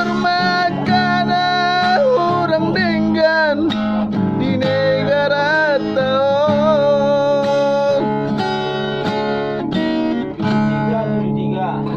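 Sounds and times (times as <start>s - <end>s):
person singing with vibrato: 0.0s - 8.2s
strummed acoustic guitar: 0.0s - 11.9s.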